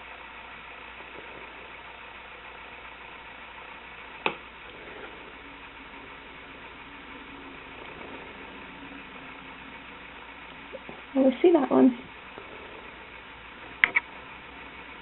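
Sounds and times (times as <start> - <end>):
faint room hiss: 0.0 - 15.0
sharp click: 13.8 - 14.1.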